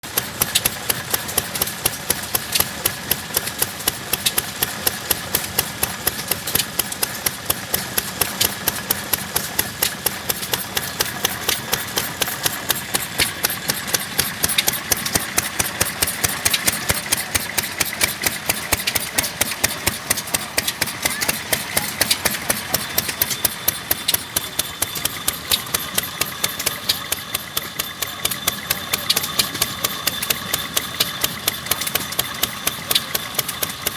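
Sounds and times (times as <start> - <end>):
stationary engine knocking steadily: 0.0 - 33.9.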